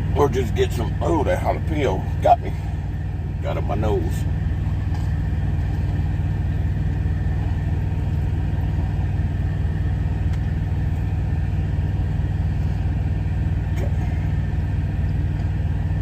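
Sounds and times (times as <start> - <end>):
truck diesel engine idling: 0.0 - 16.0.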